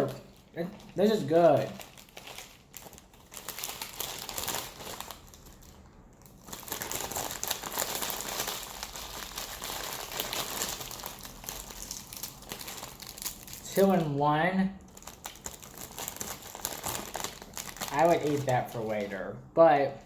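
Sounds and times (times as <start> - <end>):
plastic bag crinkling: 0.0 - 14.2, 14.8 - 19.4.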